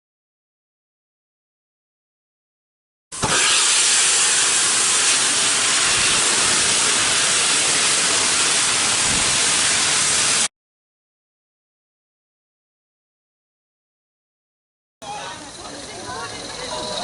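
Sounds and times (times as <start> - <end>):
loud steady hiss: 3.2 - 10.5.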